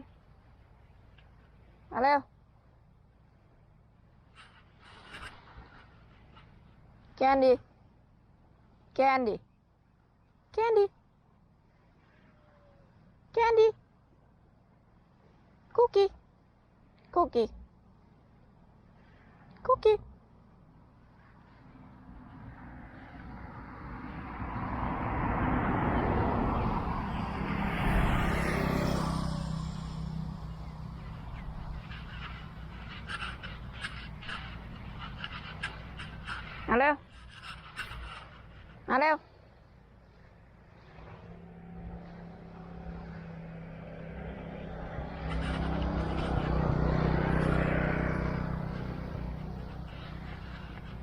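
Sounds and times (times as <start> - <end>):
vehicle passing close by: 21.4 - 38.8, 40.0 - 51.0.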